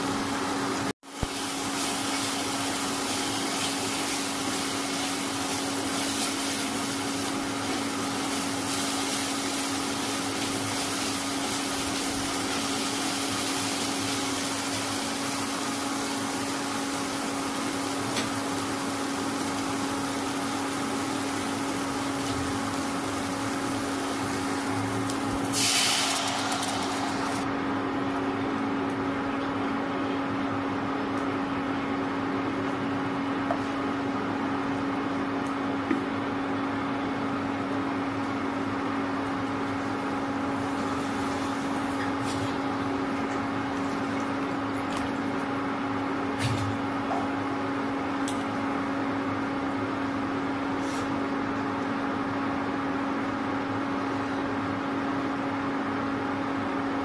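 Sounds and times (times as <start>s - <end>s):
induction cooktop hum: 0.0s - 57.0s
water sizzling in hot pan: 1.2s - 27.4s
paste sizzling in a pan: 25.5s - 27.4s.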